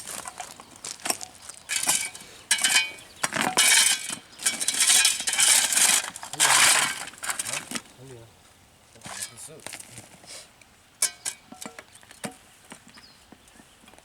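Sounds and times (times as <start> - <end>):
metal tools scraping on driveway: 0.0 - 8.0, 8.9 - 12.5
short metallic rings: 1.7 - 7.6, 11.0 - 11.8.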